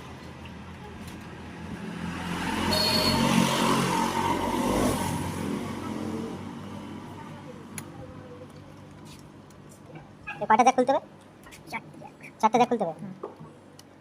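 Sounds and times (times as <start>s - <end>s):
vehicle passing by: 1.1s - 7.6s.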